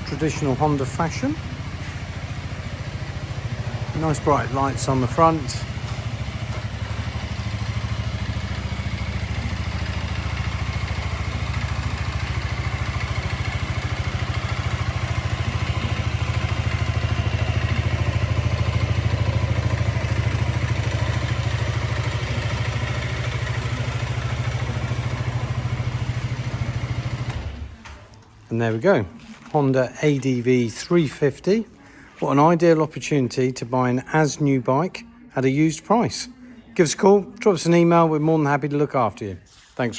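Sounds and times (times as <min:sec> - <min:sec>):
scooter engine idling: 0:00.0 - 0:28.2.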